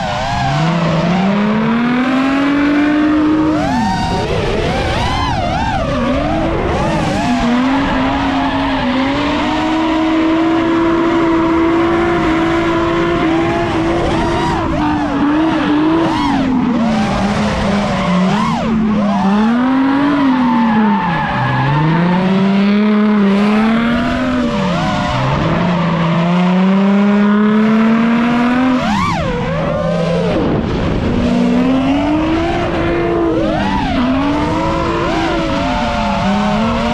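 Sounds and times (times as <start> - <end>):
car engine revving high: 0.0 - 36.9
tyres squealing and skidding: 0.0 - 36.9.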